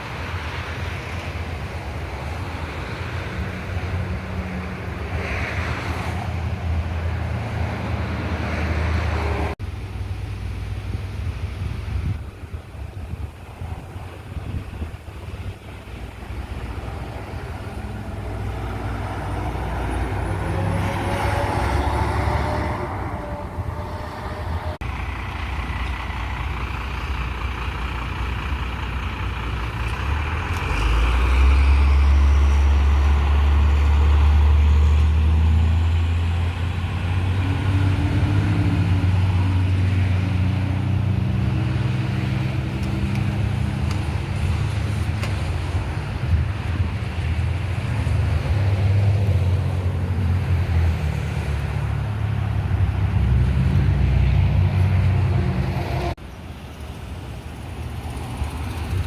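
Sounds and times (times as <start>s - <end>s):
heavy truck engine rumbling: 0.0s - 59.0s
trucks driving past: 0.0s - 59.0s.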